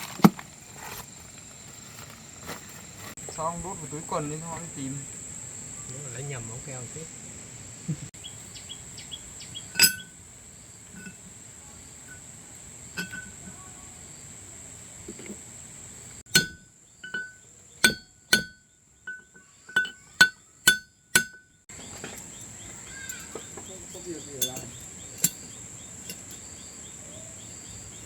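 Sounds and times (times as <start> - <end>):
hammer clinking on steel: 9.8 - 10.2, 13.0 - 13.4, 16.3 - 21.6, 24.4 - 25.4.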